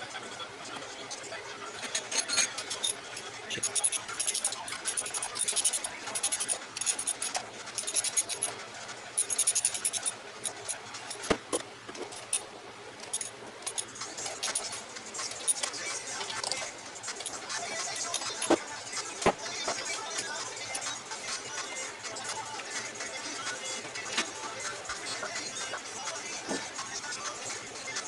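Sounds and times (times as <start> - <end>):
metallic clicks and scraping: 1.8 - 20.9.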